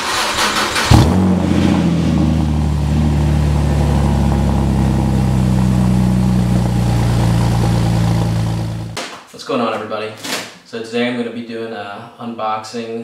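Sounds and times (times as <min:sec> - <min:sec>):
car engine starting and idling: 0:00.0 - 0:09.0.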